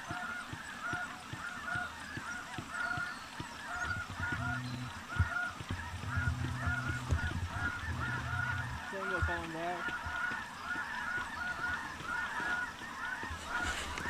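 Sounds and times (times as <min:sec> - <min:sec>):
geese honking: 0:00.0 - 0:14.0
low steady hum: 0:03.7 - 0:12.5
low thumps: 0:03.8 - 0:10.2.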